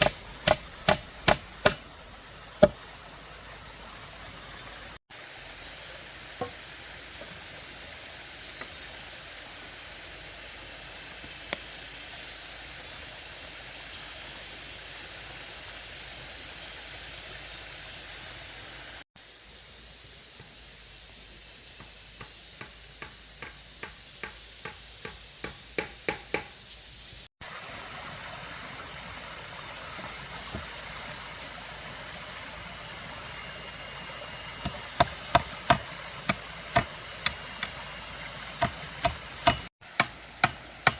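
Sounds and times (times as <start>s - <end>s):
steady background hiss: 0.0s - 40.9s.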